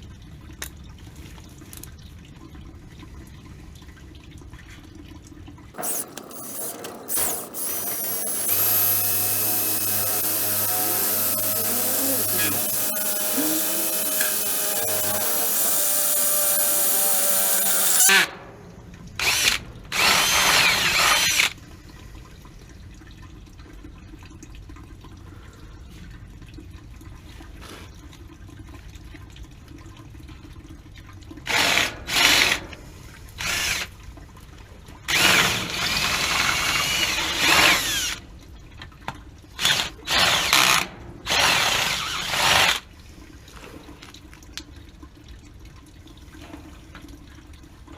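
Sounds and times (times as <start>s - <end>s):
power drill motor whine: 5.8s - 18.3s.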